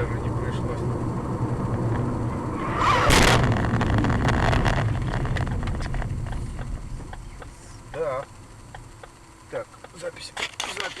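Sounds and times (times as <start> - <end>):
car engine and road noise: 0.0 - 11.0
loud rushing burst: 2.4 - 5.3.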